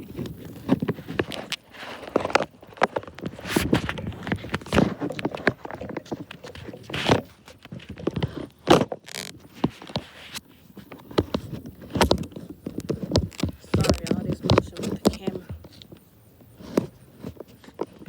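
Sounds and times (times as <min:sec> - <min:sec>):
camera knocks and rustling: 0:11.0 - 0:16.0.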